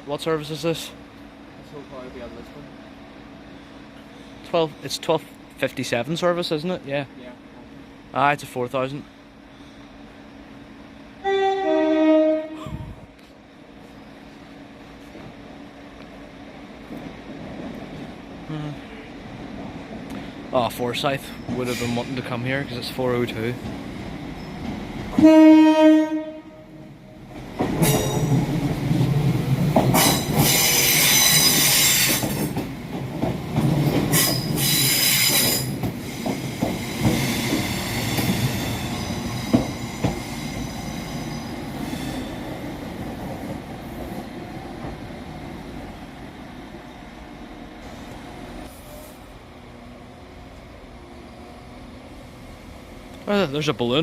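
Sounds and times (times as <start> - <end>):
train rumbling past: 0.0 - 54.0
train horn toot: 11.2 - 13.0, 25.2 - 26.8
train wheels squealing: 21.1 - 22.3, 24.3 - 24.8, 30.0 - 32.5, 34.1 - 42.6, 48.7 - 49.3.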